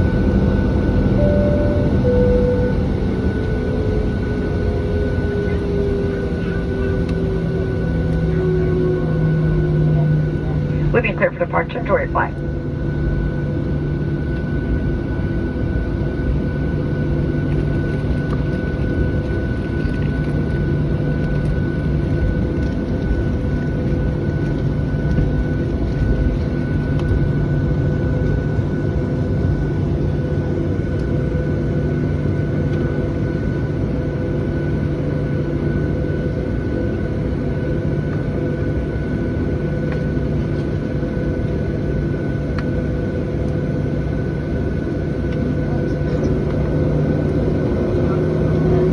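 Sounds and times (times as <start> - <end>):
thin steady whine: 0.0 - 13.3
jet engine cabin rumble: 0.0 - 48.9.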